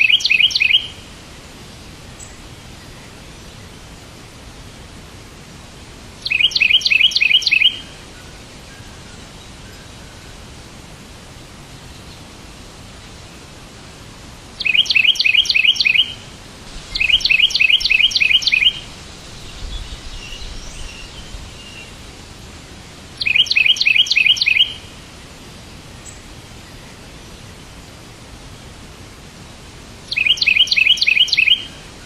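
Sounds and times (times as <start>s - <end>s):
soft bird twittering: 0.0s - 1.1s, 6.2s - 10.5s, 14.6s - 22.1s, 23.2s - 24.9s, 30.1s - 32.0s
songbird chirping: 0.0s - 29.4s, 30.0s - 32.0s
background hiss: 0.0s - 32.0s.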